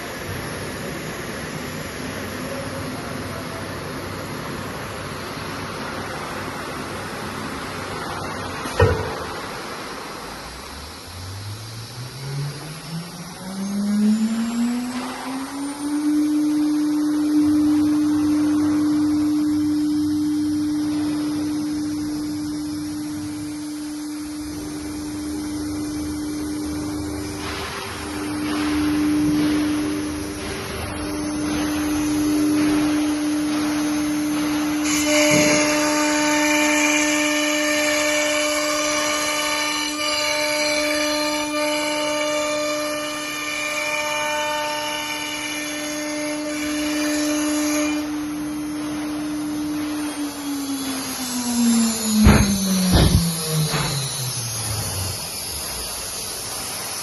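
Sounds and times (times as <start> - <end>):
spindle whine rising in pitch: 10.6 - 40.2, 41.2 - 57.0
short low thump: 52.2 - 54.0.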